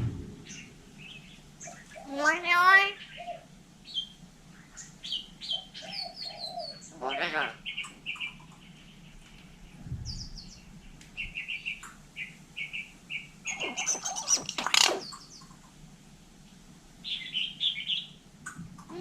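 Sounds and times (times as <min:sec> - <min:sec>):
myna chirping: 0:00.4 - 0:09.1, 0:10.1 - 0:15.7.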